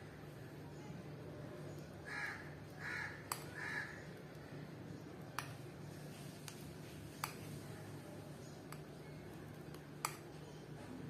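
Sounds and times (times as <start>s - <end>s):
bird cawing: 2.0s - 4.1s.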